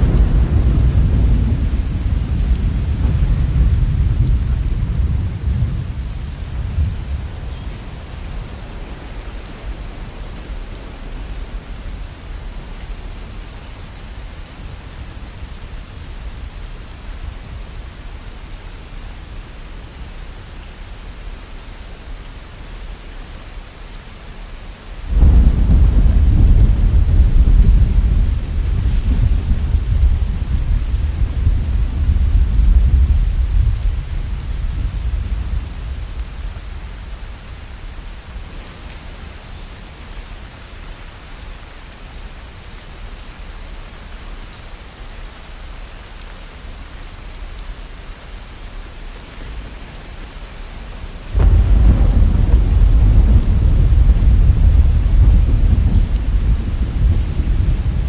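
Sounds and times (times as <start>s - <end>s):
thunder rumbling: 0.0s - 17.6s, 25.1s - 40.2s, 49.2s - 58.0s
heavy rain falling: 0.0s - 58.0s.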